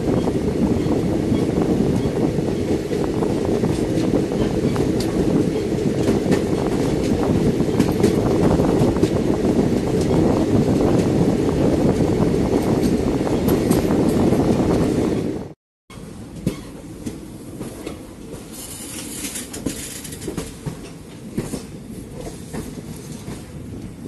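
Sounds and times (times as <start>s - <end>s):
wind buffeting microphone: 0.0s - 15.6s
train wheels rumbling on rails: 0.0s - 24.0s.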